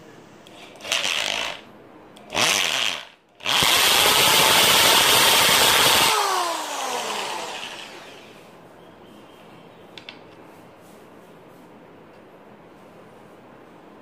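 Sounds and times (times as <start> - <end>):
electric drill boring into wood: 0.5 - 1.6, 2.3 - 8.3.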